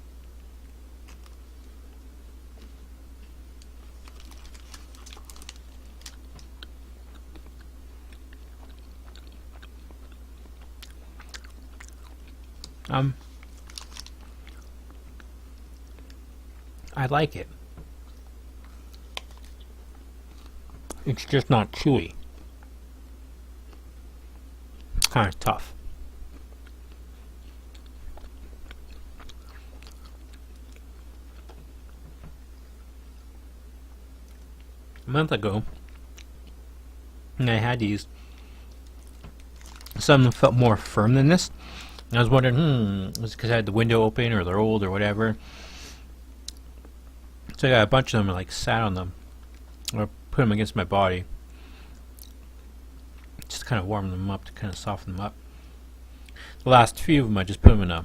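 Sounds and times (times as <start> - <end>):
steady low hum: 0.0 - 58.0
person chewing crunchy granola bar: 1.0 - 1.8, 2.6 - 17.0, 18.0 - 19.7, 26.4 - 32.0, 38.7 - 40.4.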